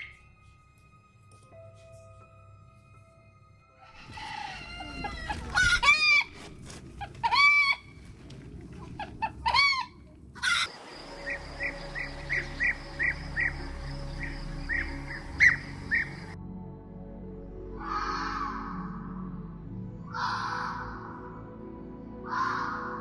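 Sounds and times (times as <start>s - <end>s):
bird arched cries: 4.0s - 8.0s, 9.2s - 16.4s
rapid high bird chirps: 10.5s - 16.4s.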